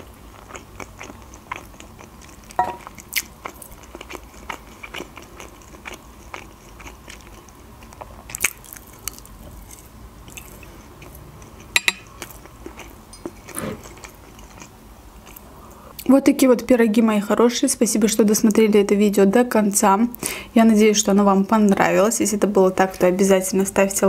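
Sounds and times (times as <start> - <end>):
person chewing: 0.0 - 15.5
fork clinking on plate: 2.6 - 2.9, 11.8 - 12.1.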